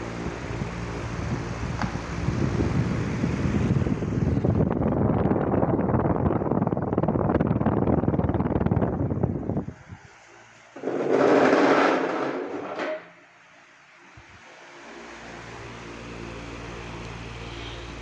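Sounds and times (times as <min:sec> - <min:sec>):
faint motor hum: 0:00.0 - 0:11.0, 0:13.2 - 0:18.0
fan rush of air: 0:00.0 - 0:18.0
wind buffeting microphone: 0:00.2 - 0:10.2.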